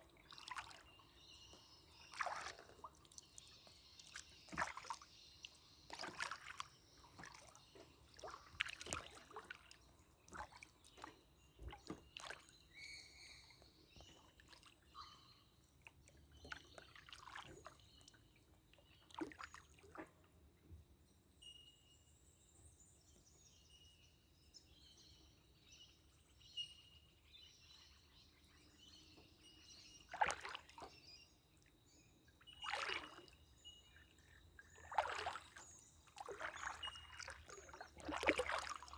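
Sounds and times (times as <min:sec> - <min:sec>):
water sloshing off paddle: 0:00.0 - 0:15.2, 0:15.9 - 0:20.4, 0:29.9 - 0:31.2, 0:32.5 - 0:38.9.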